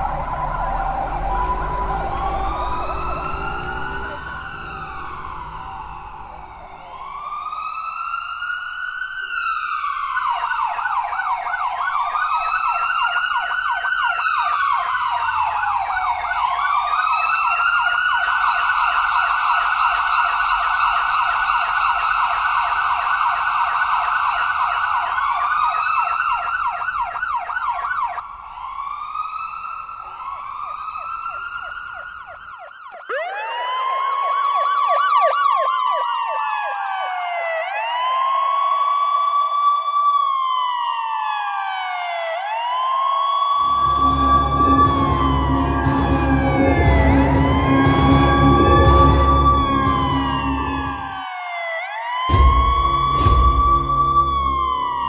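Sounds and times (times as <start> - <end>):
low rumble: 0.0 - 7.0, 43.6 - 51.2, 52.3 - 55.0
yelping siren warble: 0.0 - 7.2, 32.9 - 37.7, 43.6 - 51.5
wailing sirens: 0.0 - 55.0.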